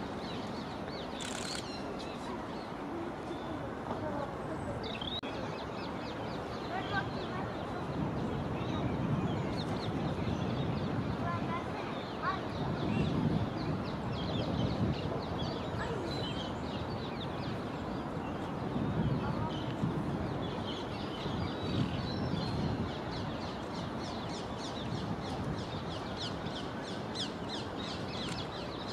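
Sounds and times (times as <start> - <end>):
wild birds chirping: 0.0 - 19.7, 20.4 - 28.9.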